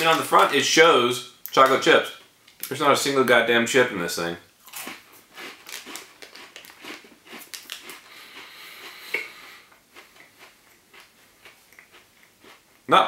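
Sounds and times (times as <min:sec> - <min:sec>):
person crunching crisp cookie: 0:04.6 - 0:12.9.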